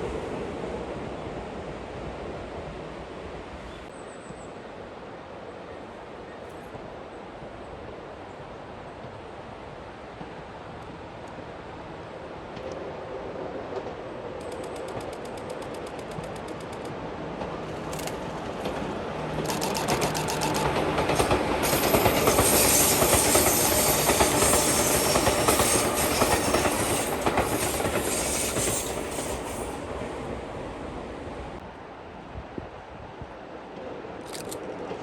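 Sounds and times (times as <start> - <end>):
electric train passing: 11.6 - 31.6
train wheels clattering on rail joints: 13.8 - 29.9.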